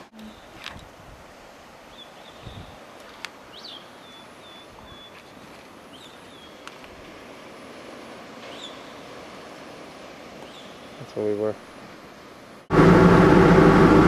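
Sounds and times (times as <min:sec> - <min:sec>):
wind and surf hiss: 0:00.0 - 0:14.0
seabird calling: 0:03.5 - 0:06.7, 0:08.4 - 0:09.2, 0:10.4 - 0:11.0.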